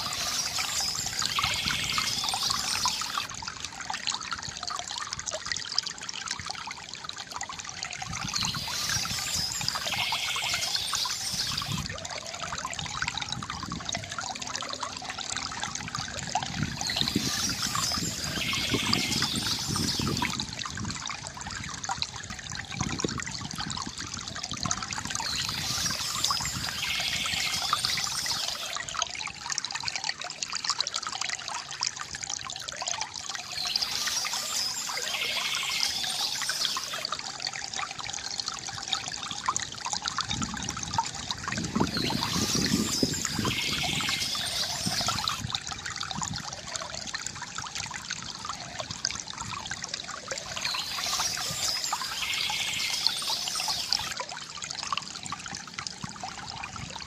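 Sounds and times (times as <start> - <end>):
soft bird chirping: 0.0 - 3.3, 8.3 - 11.8, 16.8 - 20.3, 25.2 - 28.7, 33.4 - 37.1, 41.9 - 45.4, 50.4 - 54.2
river water gurgling: 0.0 - 57.0.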